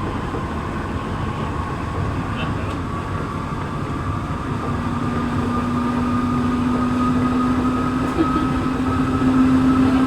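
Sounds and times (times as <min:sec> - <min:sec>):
train running rumble: 0:00.0 - 0:10.0.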